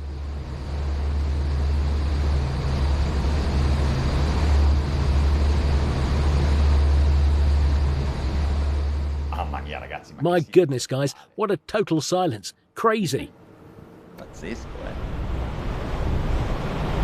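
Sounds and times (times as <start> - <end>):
rushing water and air: 0.0 - 9.4, 13.4 - 17.0
boat engines droning: 0.0 - 17.0.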